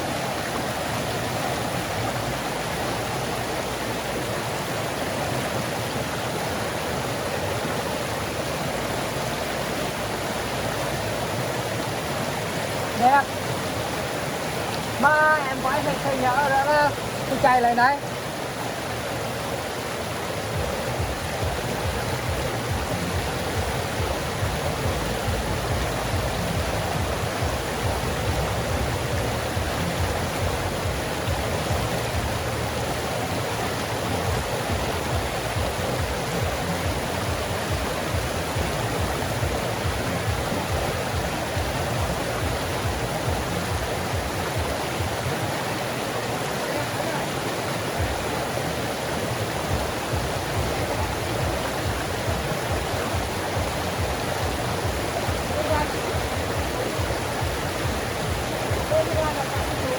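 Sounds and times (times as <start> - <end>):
creek flowing: 0.0 - 59.9.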